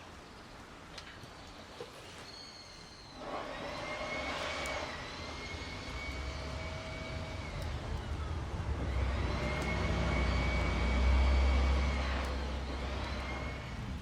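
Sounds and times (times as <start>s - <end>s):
engine droning with high whine: 3.1s - 14.0s.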